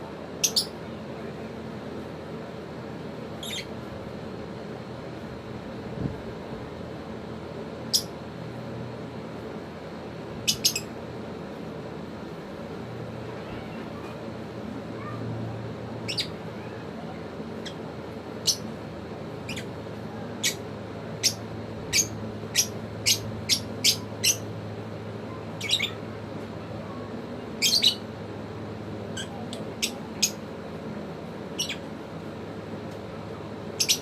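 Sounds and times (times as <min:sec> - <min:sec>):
low steady hum: 0:00.0 - 0:34.0
lovebirds chirping: 0:03.4 - 0:03.7, 0:10.4 - 0:10.9, 0:21.2 - 0:24.5, 0:27.5 - 0:28.1, 0:31.6 - 0:31.9, 0:33.7 - 0:34.0.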